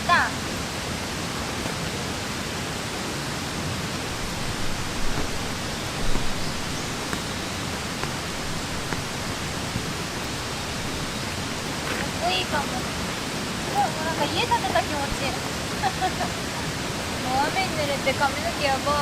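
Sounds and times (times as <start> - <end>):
steady rain falling: 0.0 - 19.0
soft low thumps: 4.0 - 11.9.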